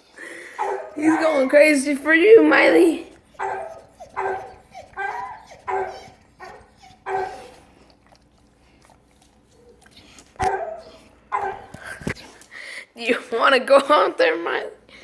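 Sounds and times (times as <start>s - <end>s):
dog barking loudly: 0.5s - 1.6s, 2.2s - 7.5s, 10.4s - 11.7s.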